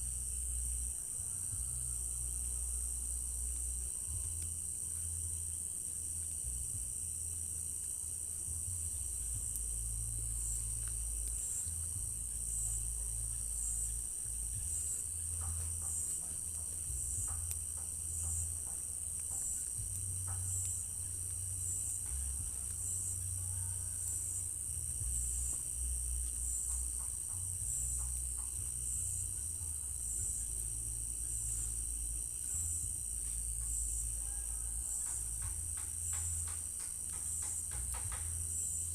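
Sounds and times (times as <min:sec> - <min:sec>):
low rumble: 0:00.0 - 0:36.4
crickets trilling: 0:00.0 - 0:38.9
insect chirping in a pulse: 0:00.0 - 0:38.9.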